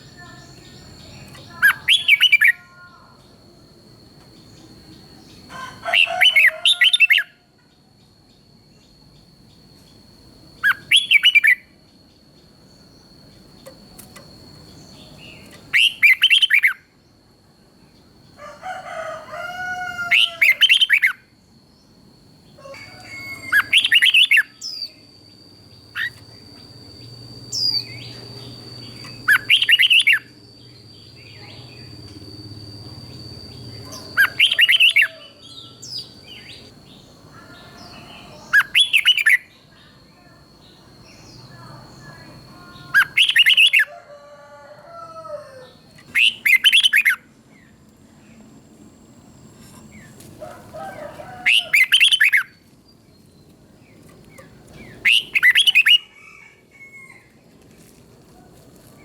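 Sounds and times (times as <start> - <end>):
bird chattering calls: 0.0 - 2.6, 27.5 - 30.3, 33.5 - 36.7, 42.6 - 43.9, 54.4 - 56.1
bird singing warbling phrases: 0.0 - 3.4, 10.6 - 11.7, 14.7 - 16.8, 20.1 - 21.2, 23.2 - 25.1, 26.9 - 32.1, 33.0 - 43.9, 45.7 - 47.3, 51.4 - 52.6, 53.9 - 56.1.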